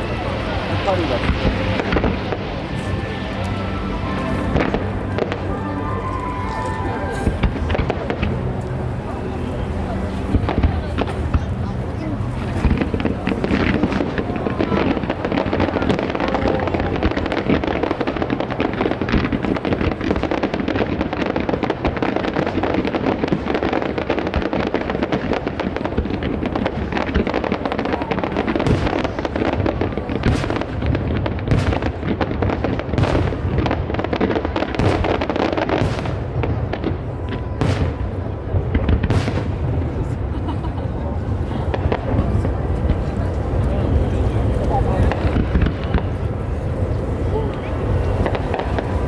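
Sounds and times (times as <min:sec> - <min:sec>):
fireworks crackling bursts: 0:00.0 - 0:49.0
loud firework bangs: 0:00.0 - 0:49.0.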